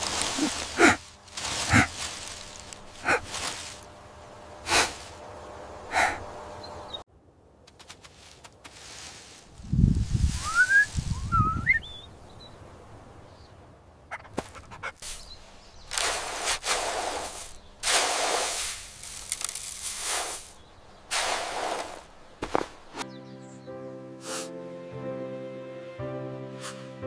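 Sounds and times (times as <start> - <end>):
rustling swishes: 0.0 - 3.9, 7.7 - 11.3, 14.2 - 23.1
bird chirping: 6.5 - 7.0, 11.2 - 16.0, 22.1 - 24.0.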